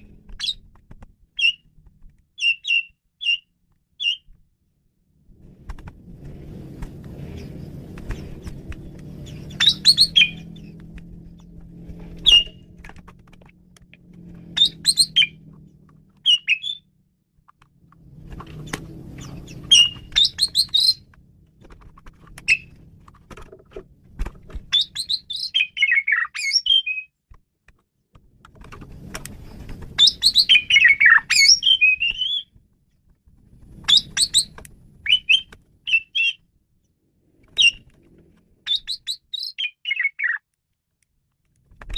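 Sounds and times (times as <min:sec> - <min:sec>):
starling singing: 0:09.2 - 0:10.8, 0:14.5 - 0:15.4, 0:16.2 - 0:16.9, 0:19.2 - 0:21.1, 0:22.4 - 0:22.8, 0:24.7 - 0:27.1, 0:30.0 - 0:32.5, 0:33.9 - 0:36.4, 0:38.7 - 0:40.4.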